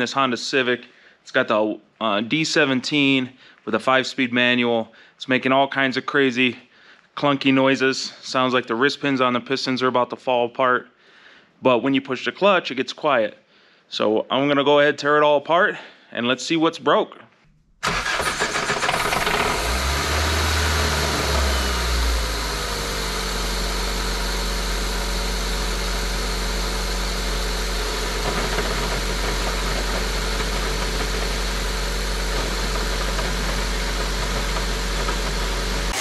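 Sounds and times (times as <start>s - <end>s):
car engine idling: 17.8s - 36.0s
clunky engine noises: 28.0s - 36.0s.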